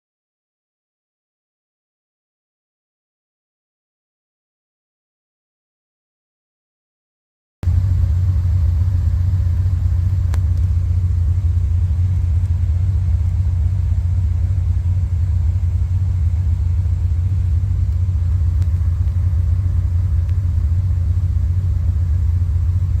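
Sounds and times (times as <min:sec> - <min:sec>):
car engine idling: 0:07.6 - 0:23.0.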